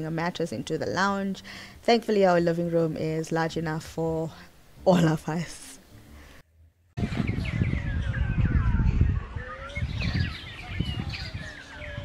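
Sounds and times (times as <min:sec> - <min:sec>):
small birds chirping and twittering: 0:07.0 - 0:12.0.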